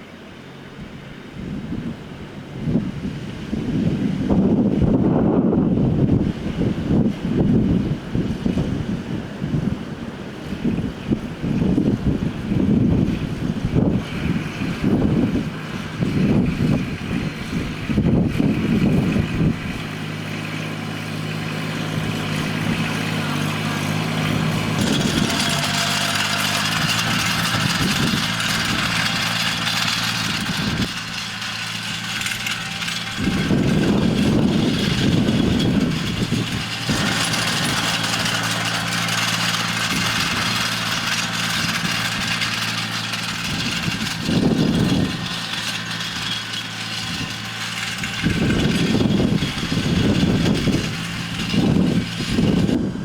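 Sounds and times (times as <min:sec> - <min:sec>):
engine humming: 0:00.0 - 0:53.0
wind buffeting microphone: 0:00.8 - 0:53.0.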